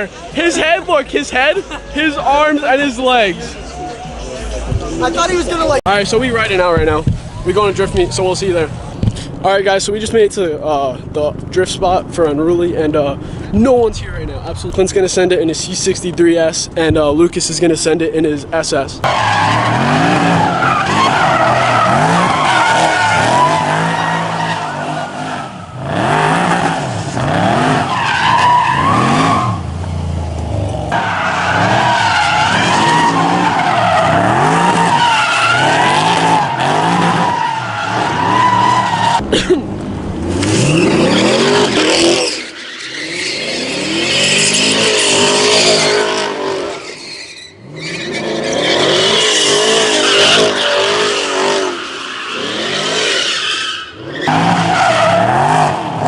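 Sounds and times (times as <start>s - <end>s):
car engines revving: 0.0s - 56.0s
tyres squealing: 19.0s - 26.9s, 27.6s - 29.7s, 30.9s - 39.2s, 40.4s - 56.0s.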